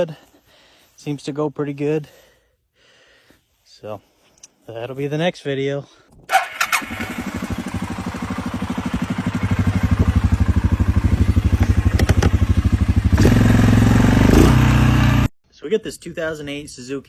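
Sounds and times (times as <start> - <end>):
atv engine idling: 6.4 - 15.3.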